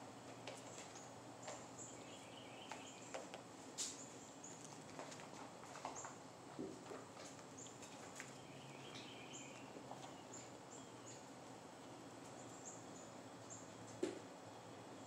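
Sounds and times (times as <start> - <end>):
kittens scuffing on concrete: 0.3 - 1.8, 2.6 - 12.5
bird chirping: 1.8 - 3.2, 7.6 - 11.3.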